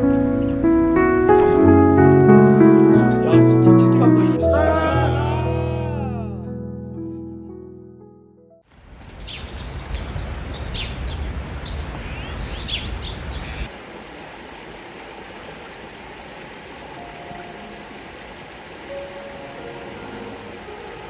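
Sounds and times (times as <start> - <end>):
small birds chirping: 9.0 - 13.7.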